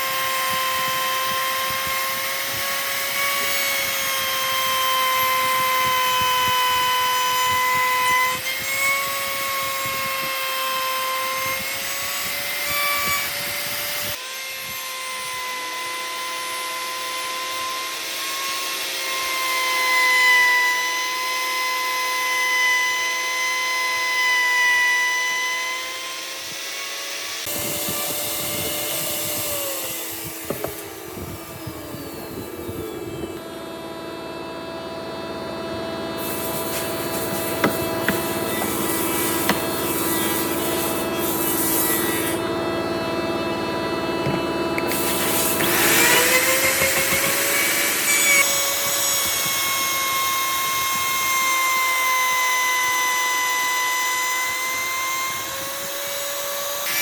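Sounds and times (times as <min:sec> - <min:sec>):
power tool motor whine: 0:00.0 - 0:57.0
wood cutting or sanding hiss: 0:36.2 - 0:42.4, 0:44.2 - 0:51.7.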